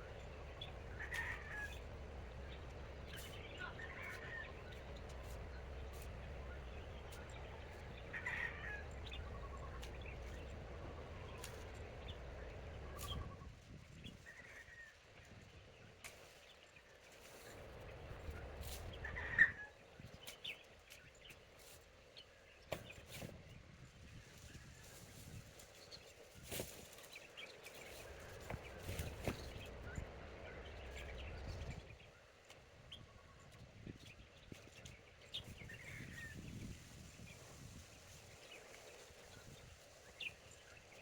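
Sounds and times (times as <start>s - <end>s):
low steady rumble: 0.0s - 15.9s, 27.8s - 40.8s.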